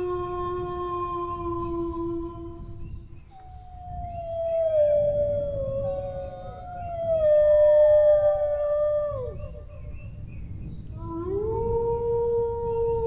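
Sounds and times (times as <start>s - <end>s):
low background rumble: 0.0s - 13.0s
dogs howling: 3.3s - 10.0s, 11.0s - 13.0s.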